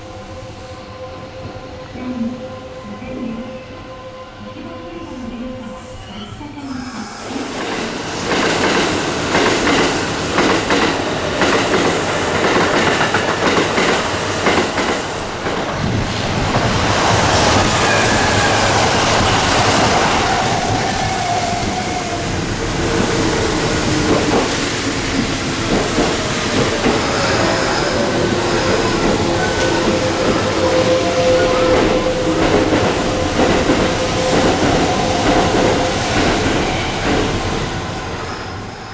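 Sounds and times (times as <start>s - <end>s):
electric train wheels clacking: 7.2s - 15.8s, 16.4s - 38.9s.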